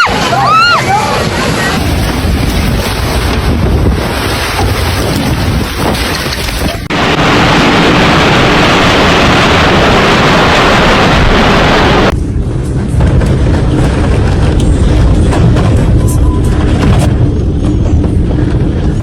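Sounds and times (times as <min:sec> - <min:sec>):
storm wind on microphone: 0:00.0 - 0:19.0.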